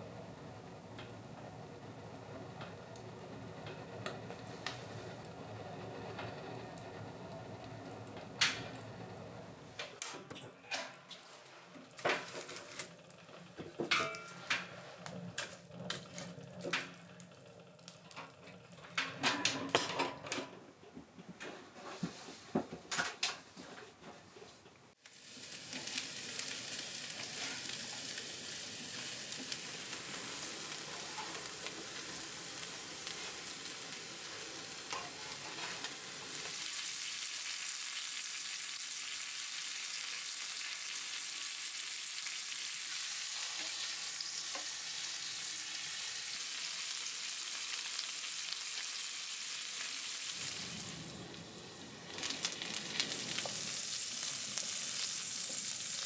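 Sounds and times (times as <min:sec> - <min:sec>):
pots and utensils clinking: 0:13.6 - 0:14.8, 0:18.8 - 0:20.6, 0:29.4 - 0:32.2, 0:34.3 - 0:36.5
food sizzling: 0:25.0 - 0:56.0.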